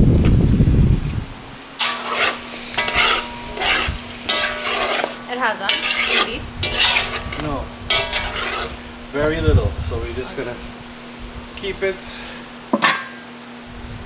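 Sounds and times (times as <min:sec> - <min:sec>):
spoon stirring and scraping pot: 0:01.8 - 0:08.8
chicken sizzling in a pot: 0:01.8 - 0:09.4.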